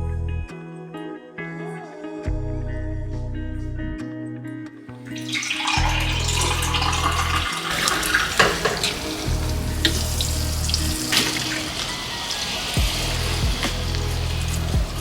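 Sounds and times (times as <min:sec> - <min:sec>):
background music: 0:00.0 - 0:15.0
water running: 0:05.1 - 0:15.0
clinks and knocks: 0:08.2 - 0:10.0.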